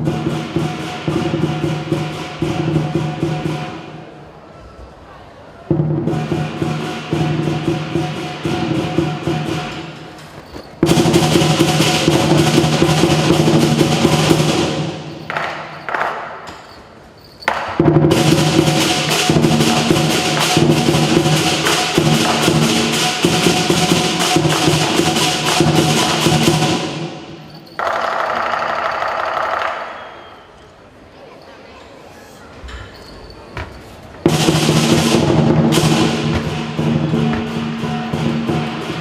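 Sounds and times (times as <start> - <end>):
large drum: 0.0 - 4.2, 5.7 - 10.2, 10.8 - 15.4, 17.5 - 27.5, 34.2 - 39.0
cymbals clashing: 0.0 - 4.3, 5.7 - 30.6, 32.9 - 39.0
gong: 34.3 - 39.0.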